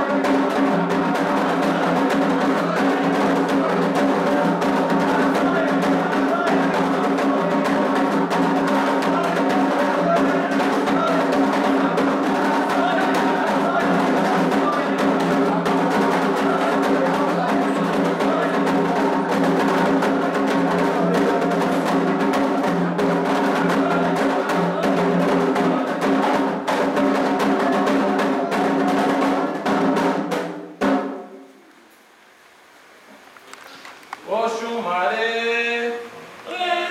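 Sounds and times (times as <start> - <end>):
hand drums in fast rhythm: 0.0 - 31.2.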